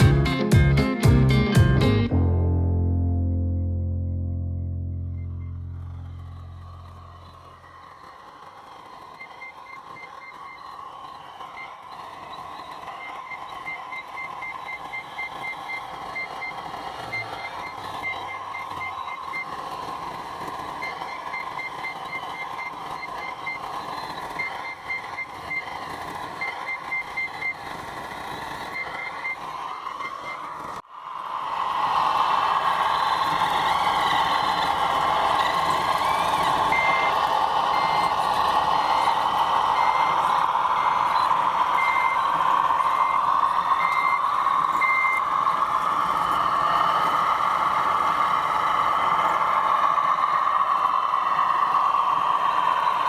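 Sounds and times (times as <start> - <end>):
reversing beeper pips: 3.3 - 30.8, 31.6 - 53.0
electric motor whine: 11.8 - 53.0.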